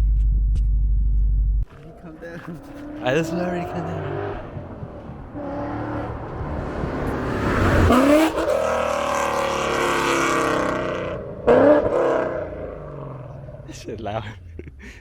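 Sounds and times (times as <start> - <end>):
engine revving: 1.6 - 14.5
car engine accelerating hard: 1.6 - 14.7.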